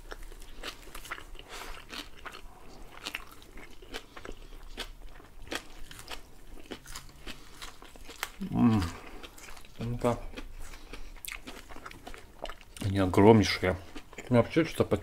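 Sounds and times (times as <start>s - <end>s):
close chewing with sharp crunches: 0.0s - 14.8s.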